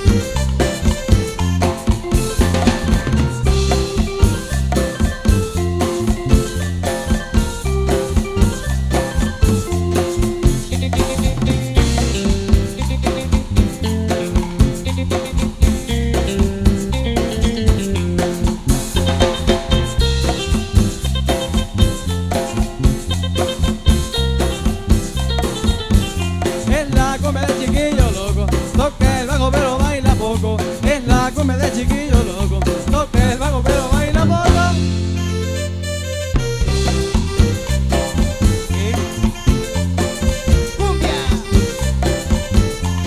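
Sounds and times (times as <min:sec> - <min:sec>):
cumbia band playing: 0:00.0 - 0:43.0.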